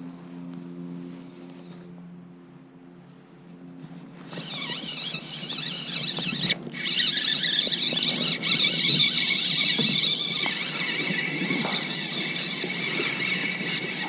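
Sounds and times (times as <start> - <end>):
fishing reel whirring: 4.2 - 14.0.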